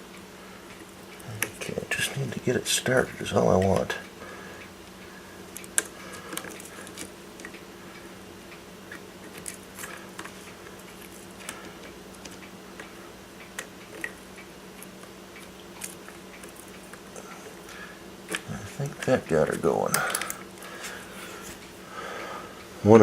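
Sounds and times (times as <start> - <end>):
steady low hum: 0.0 - 23.0
screwdriver clicking on metal: 19.9 - 20.4.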